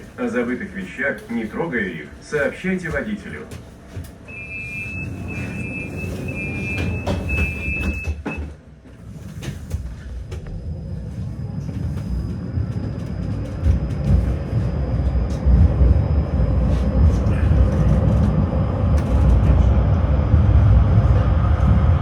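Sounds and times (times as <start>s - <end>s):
tram wheels and motors rumbling: 0.0s - 22.0s
tram door warning beeps: 2.4s - 19.2s.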